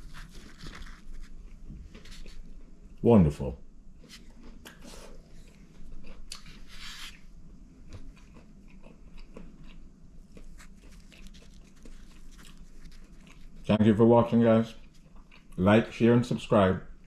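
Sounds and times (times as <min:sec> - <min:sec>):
person chewing food: 0:00.0 - 0:02.8, 0:04.0 - 0:13.7, 0:14.7 - 0:15.6.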